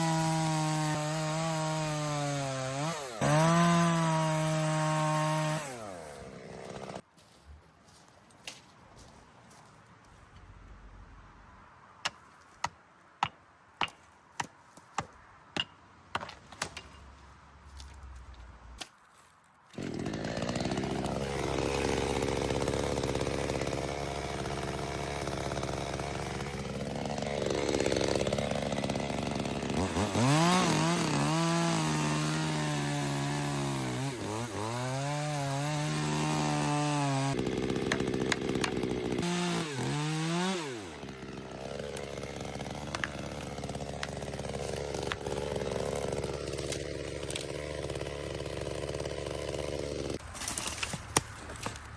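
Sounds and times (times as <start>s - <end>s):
chainsaw revving and cutting wood: 0.0s - 7.3s, 19.7s - 51.9s.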